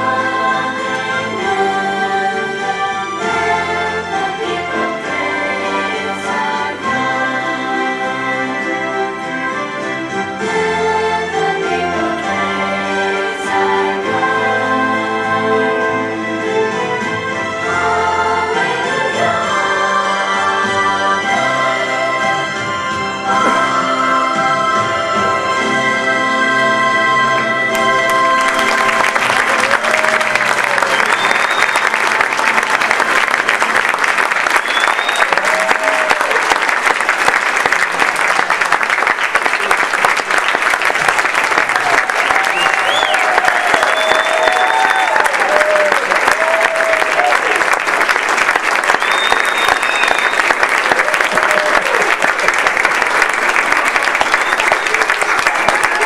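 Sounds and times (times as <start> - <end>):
recorded music: 0.0 - 36.4
audience applauding: 27.7 - 56.0
high whistle: 30.6 - 32.1, 34.5 - 35.5, 42.2 - 45.3, 48.9 - 50.7, 54.1 - 56.0.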